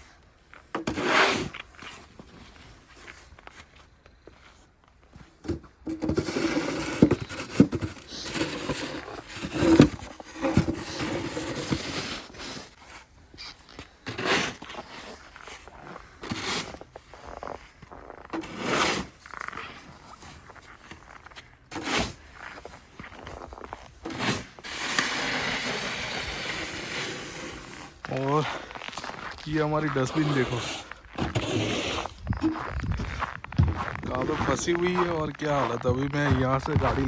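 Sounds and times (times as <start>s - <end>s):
snow shovel scraping snow: 0.6s - 3.3s, 6.0s - 37.0s.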